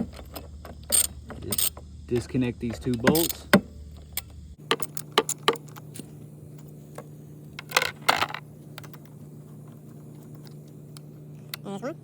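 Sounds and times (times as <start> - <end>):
steady low hum: 0.0 - 12.0
ratchet wrench metallic clicks: 0.2 - 1.8, 2.8 - 3.5.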